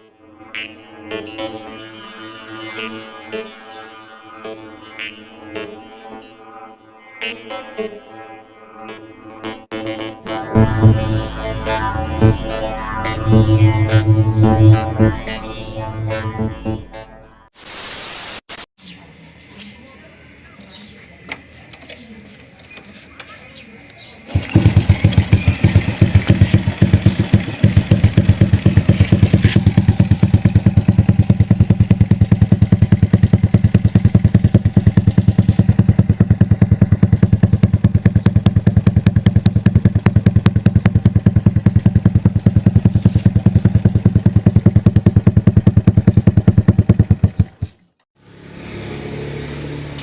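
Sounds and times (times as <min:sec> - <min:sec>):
motorcycle engine running: 0:10.4 - 0:16.7, 0:24.3 - 0:50.0.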